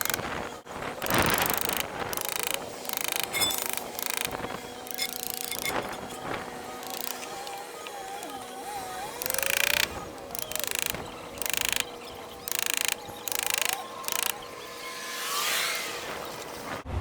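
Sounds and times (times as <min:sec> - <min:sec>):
tool scraping wooden seam: 0:01.0 - 0:14.4.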